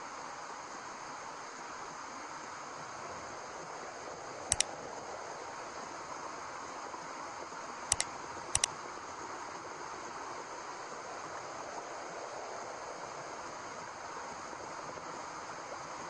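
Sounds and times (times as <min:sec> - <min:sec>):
steady white noise hiss: 0:00.0 - 0:16.0
quick double clicks: 0:07.9 - 0:08.7.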